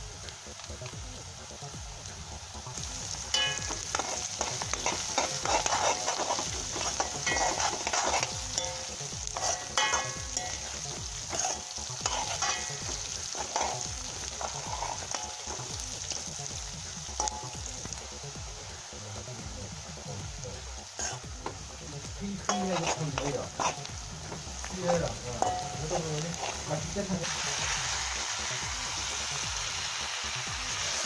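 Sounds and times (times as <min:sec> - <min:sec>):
onions sizzling in hot oil: 0:00.0 - 0:31.0
metal spoon scraping a pan: 0:02.9 - 0:17.7, 0:20.8 - 0:21.7, 0:22.4 - 0:27.5.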